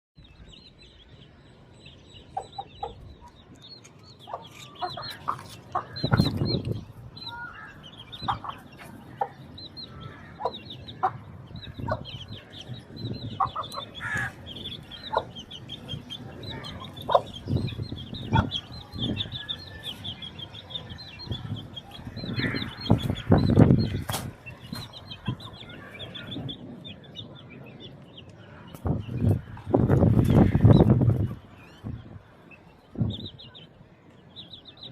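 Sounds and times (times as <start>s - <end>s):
high chirping: 0.4s - 28.1s
roosters clucking: 2.1s - 33.8s
wings flapping and scuffling: 22.9s - 25.0s.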